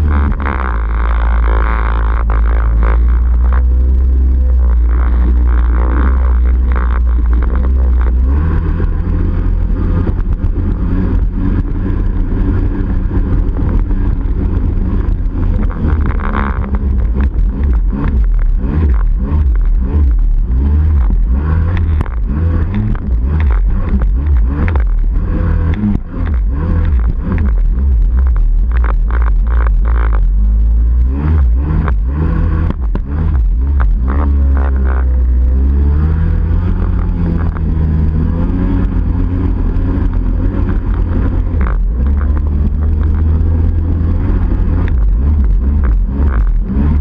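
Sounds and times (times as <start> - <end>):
two-stroke engine revving: 0.0 - 47.0.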